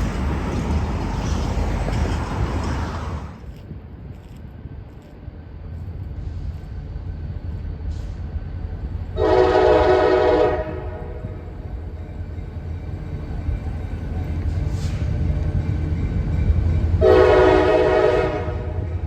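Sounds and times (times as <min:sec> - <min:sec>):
diesel locomotive rumbling: 0:00.0 - 0:19.0
locomotive air horn blast: 0:09.2 - 0:11.4, 0:17.0 - 0:19.0.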